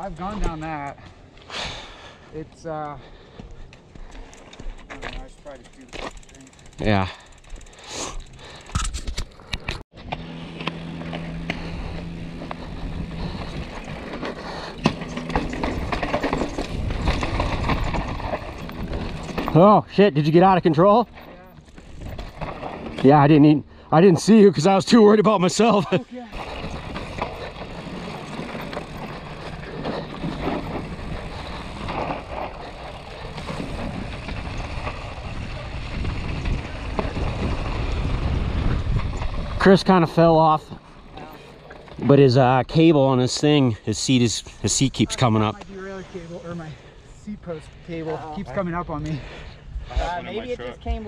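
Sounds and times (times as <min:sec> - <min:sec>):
bike tyres rolling on dirt: 0:00.0 - 0:08.7, 0:09.3 - 0:47.1
low hum while coasting: 0:02.9 - 0:42.1
bike rattling over bumps: 0:04.1 - 0:46.9
wind rumble on microphone: 0:11.8 - 0:14.1, 0:15.6 - 0:19.4, 0:33.3 - 0:39.6.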